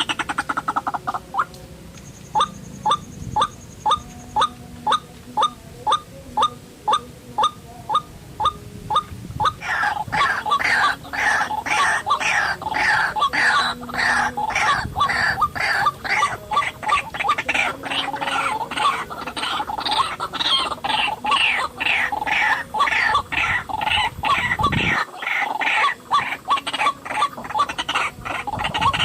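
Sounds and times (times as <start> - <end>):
bird harsh clucking calls: 0.0 - 29.0.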